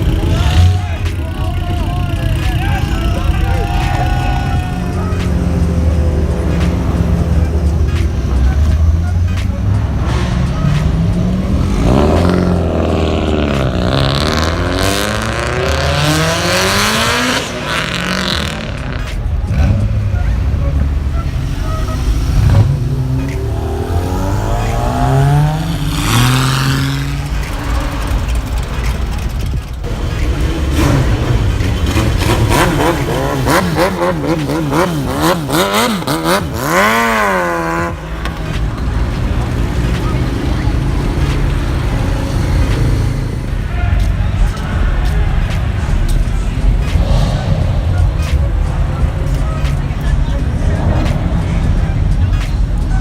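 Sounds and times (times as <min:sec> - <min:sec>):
car engine revving hard: 0:03.1 - 0:20.2, 0:21.0 - 0:43.6.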